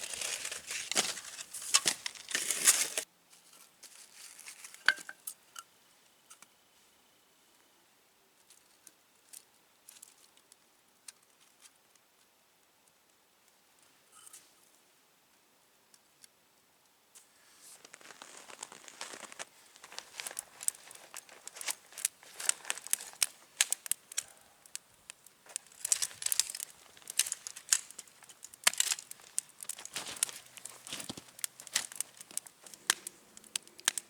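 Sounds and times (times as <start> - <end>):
wrapper crinkling: 0.0 - 3.0, 17.7 - 34.0.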